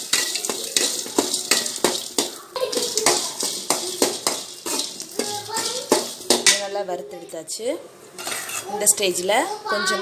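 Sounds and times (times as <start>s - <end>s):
spatula scraping a pan: 0.0s - 6.7s, 8.2s - 8.9s
spices roasting in oil: 0.0s - 10.0s.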